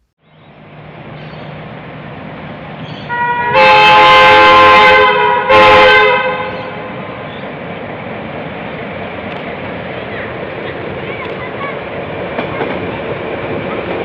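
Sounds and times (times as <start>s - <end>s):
train running noise: 0.0s - 14.0s
locomotive horn blasts: 3.0s - 7.0s.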